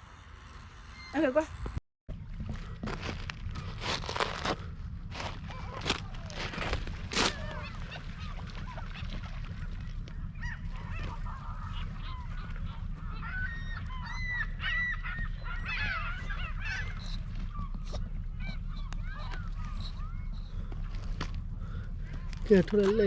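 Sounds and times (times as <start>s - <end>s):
steady low rumble: 0.0s - 23.0s
flock of birds honking: 5.2s - 23.0s.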